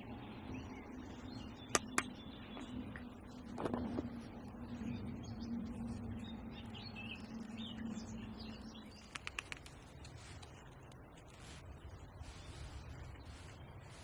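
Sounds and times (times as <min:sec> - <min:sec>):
bird chirping: 0:00.0 - 0:14.0
steady low hum: 0:00.0 - 0:14.0
quick clicks: 0:09.0 - 0:10.2.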